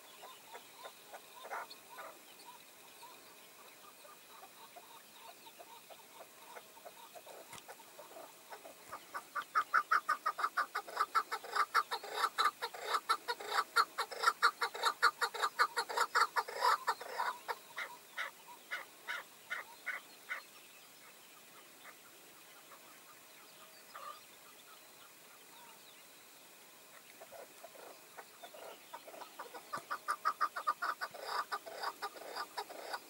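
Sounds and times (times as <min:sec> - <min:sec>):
partridge clucking calls: 0:00.0 - 0:03.2, 0:03.8 - 0:20.4, 0:26.9 - 0:33.0.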